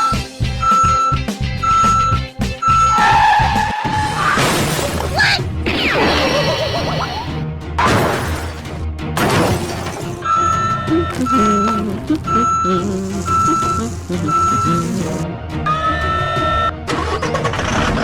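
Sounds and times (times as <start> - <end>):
vehicle reversing beeps: 0.0 - 3.2, 10.2 - 17.2
background music: 0.0 - 18.0
cartoon crashing and shattering: 3.8 - 6.2, 7.8 - 10.2.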